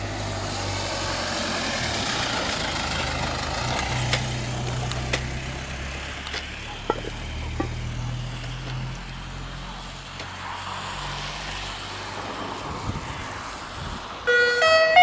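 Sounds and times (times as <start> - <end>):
vehicle engine humming: 0.0 - 15.0
electronic chiming tune: 14.3 - 15.0.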